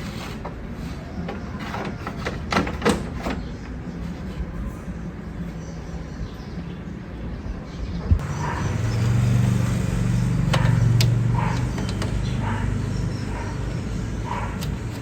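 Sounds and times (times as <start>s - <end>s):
car engine humming: 8.2s - 15.0s
dog barking: 8.3s - 8.8s, 10.6s - 14.7s.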